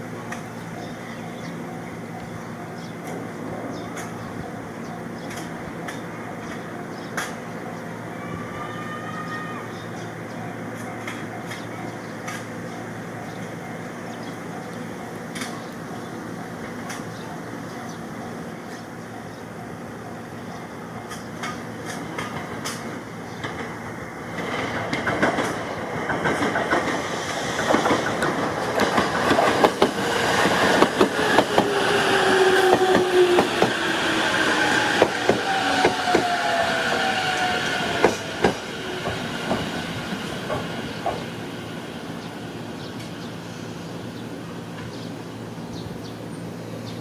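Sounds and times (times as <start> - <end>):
train passing on rails: 0.0 - 47.0
wheels clicking over rail joints: 21.0 - 33.8.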